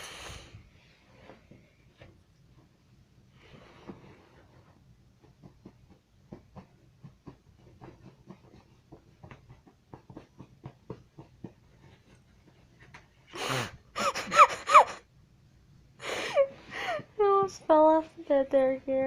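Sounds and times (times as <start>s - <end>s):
cat claws scratching fabric: 4.5s - 13.4s.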